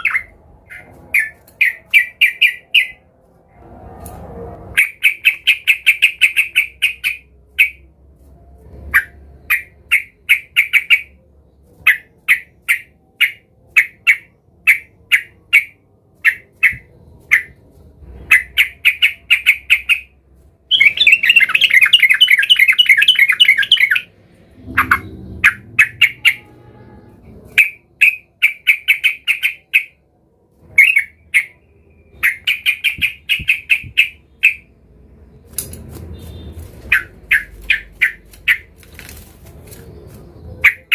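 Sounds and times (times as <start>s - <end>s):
bulbul chirping: 20.7s - 26.5s, 32.2s - 34.7s, 36.1s - 38.7s.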